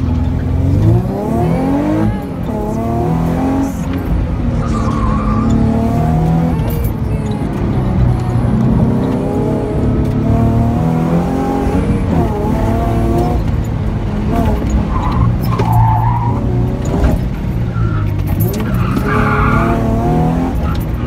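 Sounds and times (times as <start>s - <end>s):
car engine running hard: 0.0s - 21.0s
tire squeal: 4.6s - 6.1s, 14.7s - 16.6s, 17.6s - 21.0s.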